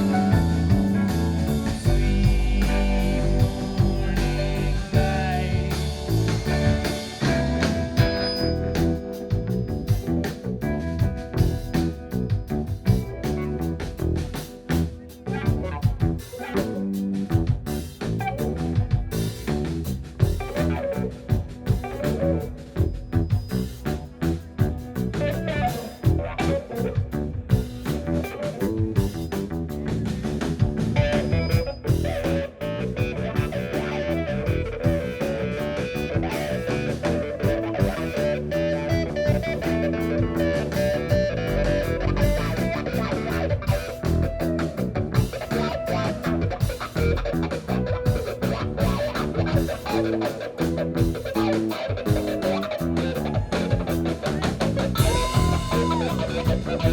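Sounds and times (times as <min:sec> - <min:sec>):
electric guitar notes: 0:00.0 - 0:16.5, 0:31.0 - 0:56.9
bass guitar: 0:00.0 - 0:56.9
drum kit beat: 0:00.0 - 0:56.9.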